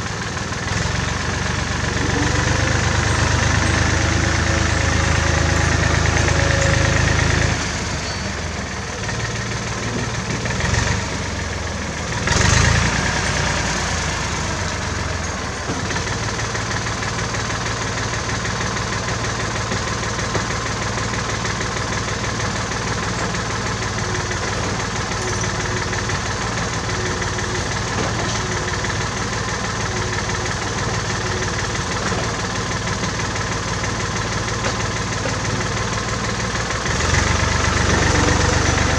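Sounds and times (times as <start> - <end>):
tractor engine idling: 0.0 - 38.9.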